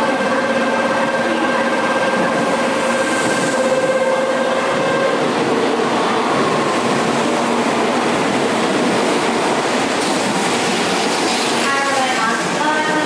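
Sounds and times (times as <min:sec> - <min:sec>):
bullet train rushing noise: 0:00.0 - 0:13.0.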